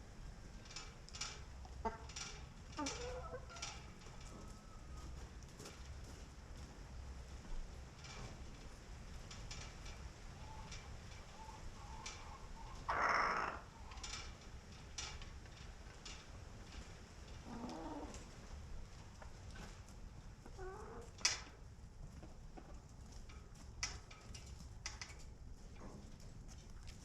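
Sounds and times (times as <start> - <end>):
chickens clucking: 2.8 - 3.7.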